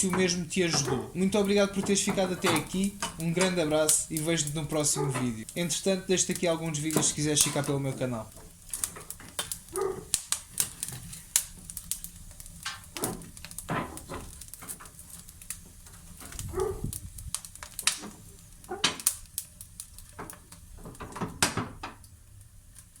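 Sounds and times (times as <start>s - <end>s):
sharp clicks and knocks: 0.0s - 5.6s.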